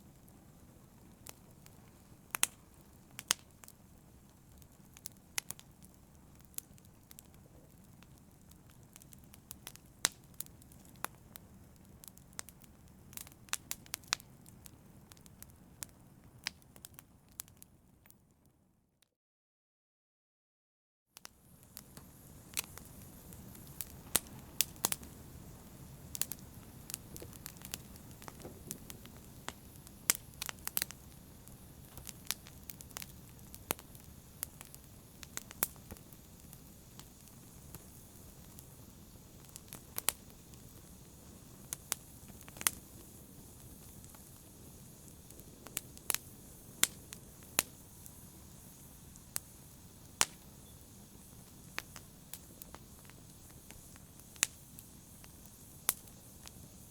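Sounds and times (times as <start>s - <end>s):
wood fire crackling: 0.0s - 18.4s, 21.2s - 56.9s.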